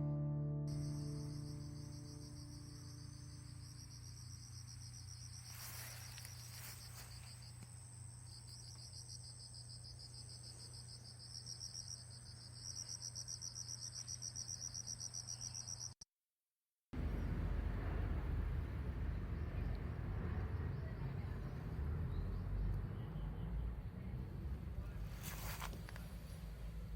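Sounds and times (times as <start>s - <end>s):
insects chirping: 0.7s - 16.0s
low steady hum: 17.0s - 26.9s.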